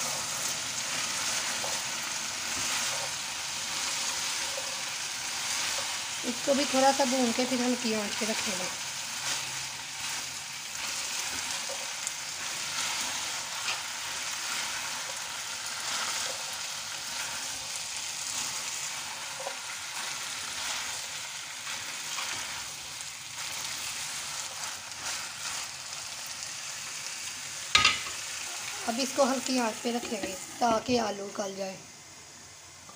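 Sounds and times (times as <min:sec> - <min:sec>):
wooden spatula scraping a pan: 0:00.0 - 0:22.8
meat and potatoes sizzling in a wok: 0:00.0 - 0:32.9.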